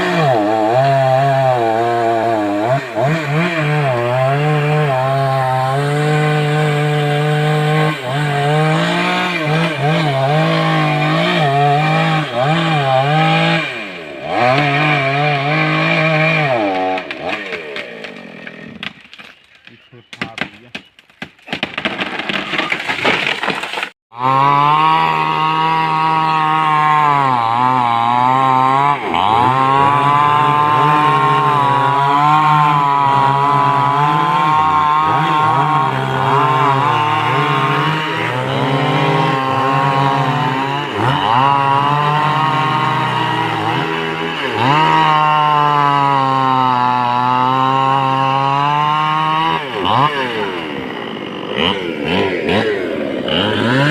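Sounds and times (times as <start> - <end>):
chainsaw cutting wood: 0.0 - 53.9
wood cracking and snapping: 16.8 - 24.0.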